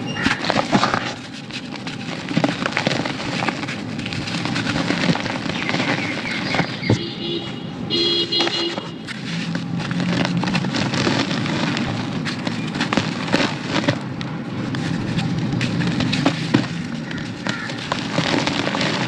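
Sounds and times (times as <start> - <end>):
cake crumbles being crushed: 9.0 - 19.0.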